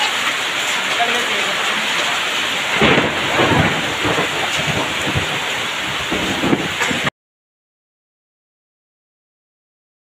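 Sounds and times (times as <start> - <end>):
heavy rain pouring: 0.0 - 7.1
low rumbling: 2.4 - 7.1.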